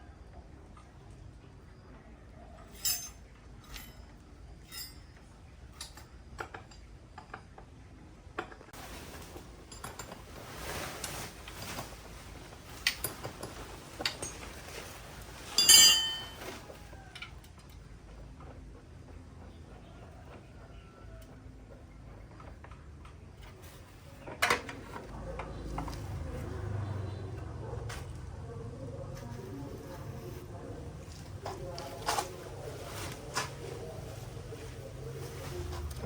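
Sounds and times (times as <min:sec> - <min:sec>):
metal tools clinking: 0:02.6 - 0:07.5, 0:09.0 - 0:17.8
loud ringing metal clank: 0:15.6 - 0:16.4.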